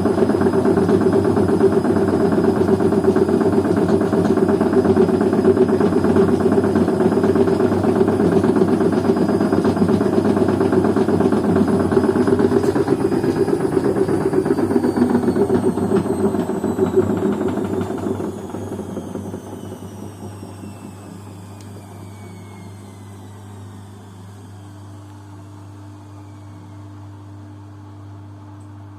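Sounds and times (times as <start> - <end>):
washing machine drum rumble: 0.0 - 21.1
motor whine falling in pitch: 0.0 - 28.9.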